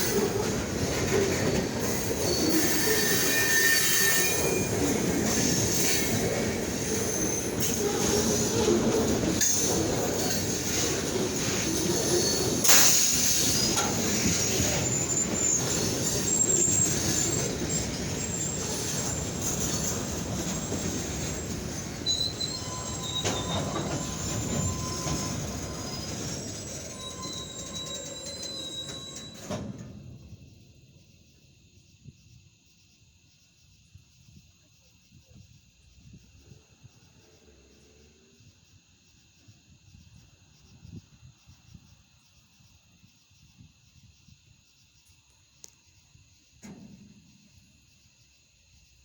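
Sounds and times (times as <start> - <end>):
freight train rumbling past: 0.0 - 31.4
insects chirring: 0.0 - 49.0
high-pitched wheel squeal: 1.8 - 6.2, 6.8 - 29.8.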